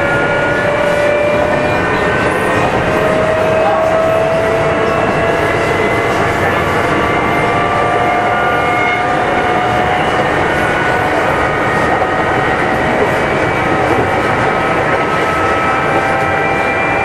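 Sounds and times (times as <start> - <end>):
running gear whine: 0.0 - 17.0
train wheels rumbling on rail: 0.0 - 17.0.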